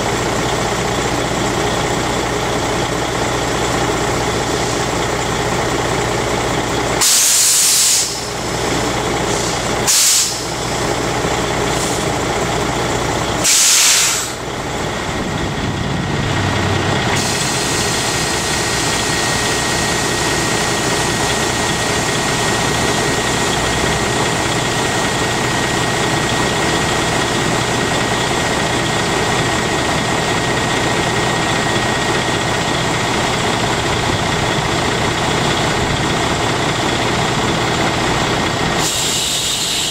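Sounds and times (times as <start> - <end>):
diesel engine idling: 0.0 - 39.9
air brake hisses: 7.0 - 8.4, 9.3 - 10.6, 11.7 - 12.1, 13.4 - 14.4, 17.2 - 18.2, 38.8 - 39.9.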